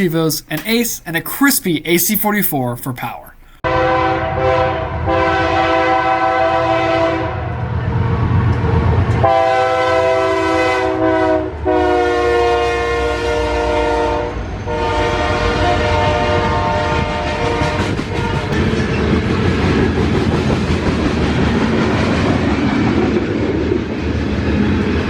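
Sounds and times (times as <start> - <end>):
locomotive air horn blasts: 3.6 - 7.6, 9.2 - 18.6.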